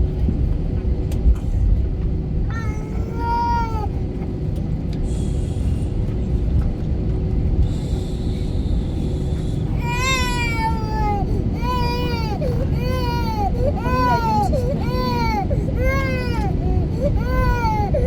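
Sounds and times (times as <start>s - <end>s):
airliner cabin rumble: 0.0s - 18.0s
baby wailing cry: 2.5s - 3.9s, 9.8s - 18.0s.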